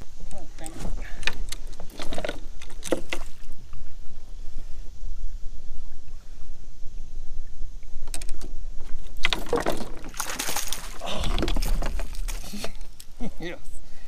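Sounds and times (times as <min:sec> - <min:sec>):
wind rumbling on microphone: 0:00.0 - 0:14.0
handling noise or splashing: 0:09.2 - 0:13.0.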